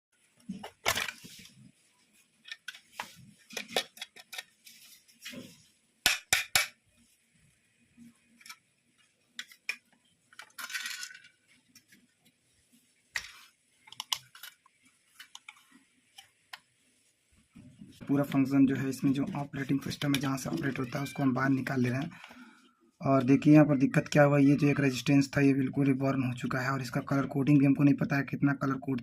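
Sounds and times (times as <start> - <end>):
plastic parts clicking and clinking: 0.5 - 1.4, 2.4 - 4.6, 9.3 - 11.4, 13.2 - 15.6.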